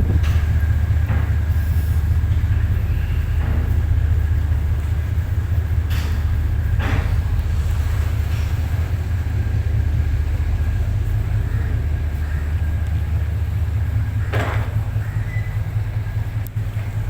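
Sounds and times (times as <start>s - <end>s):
ferry engines droning: 0.0s - 17.0s.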